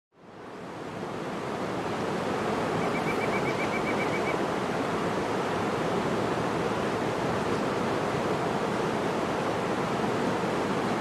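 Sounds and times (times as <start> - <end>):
waterfall rushing: 0.8 - 11.0
bird trilling: 2.8 - 4.4.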